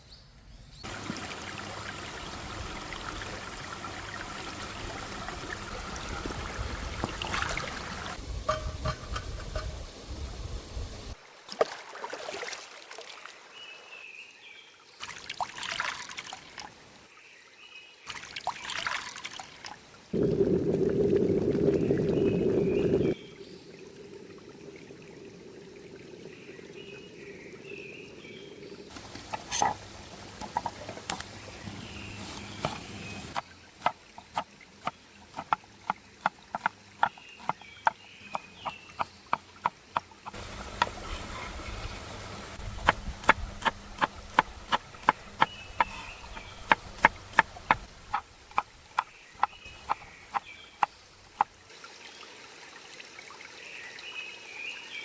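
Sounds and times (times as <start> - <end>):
liquid pouring: 0.9 - 9.9, 15.0 - 16.7, 18.1 - 27.0
birds chirping: 21.6 - 23.7, 26.2 - 51.5
knife chopping on cutting board: 36.6 - 37.6.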